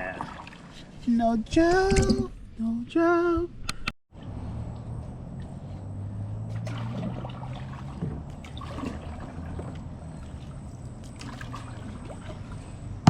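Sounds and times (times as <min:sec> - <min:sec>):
water trickling and splashing: 0:00.0 - 0:02.3, 0:06.3 - 0:13.0
low steady hum: 0:00.0 - 0:13.0.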